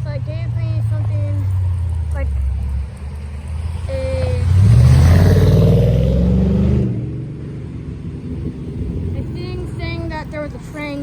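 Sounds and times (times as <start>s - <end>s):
vehicle accelerating past: 0.7s - 9.3s.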